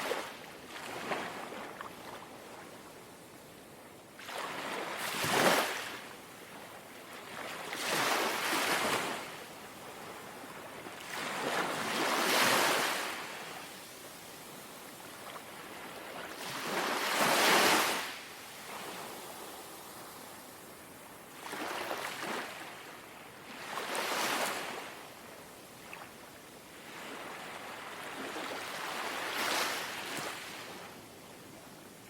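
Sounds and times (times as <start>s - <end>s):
gentle sea waves lapping: 0.0s - 3.5s, 4.2s - 32.0s.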